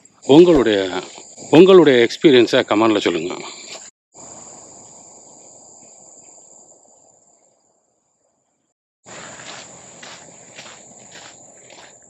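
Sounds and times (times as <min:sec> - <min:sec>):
insects droning: 0:00.0 - 0:12.0
footsteps walking: 0:09.1 - 0:12.0.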